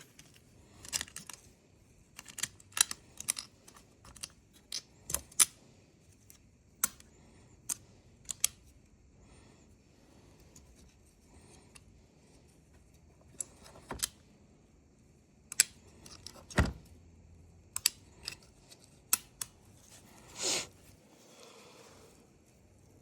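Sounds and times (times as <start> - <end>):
tools clicking and tapping: 17.7 - 19.6.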